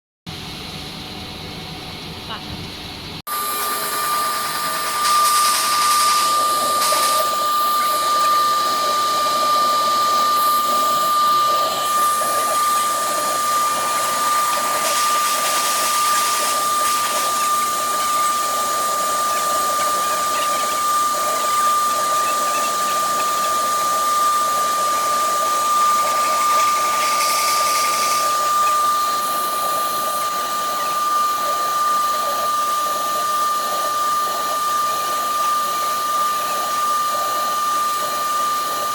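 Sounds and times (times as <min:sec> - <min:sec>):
router spindle whining: 0:03.3 - 0:38.9
cutting hiss: 0:03.5 - 0:31.6.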